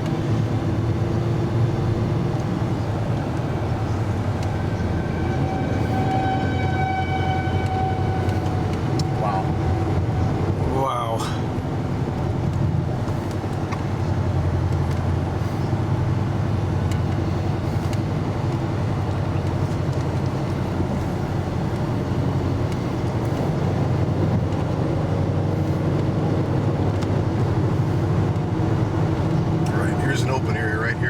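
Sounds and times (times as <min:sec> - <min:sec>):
car engine: 0:00.0 - 0:31.0
road rumble: 0:00.0 - 0:31.0.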